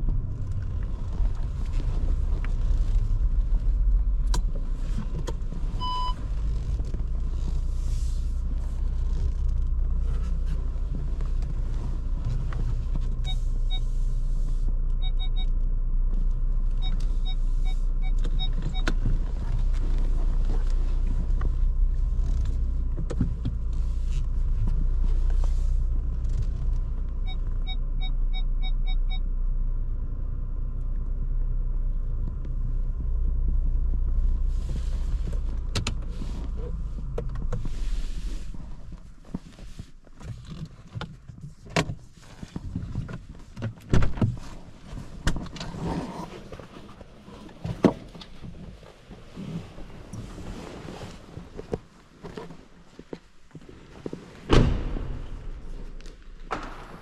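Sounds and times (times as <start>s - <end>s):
car engine and tyres rumbling: 0.0s - 57.0s
short beep: 5.8s - 6.2s.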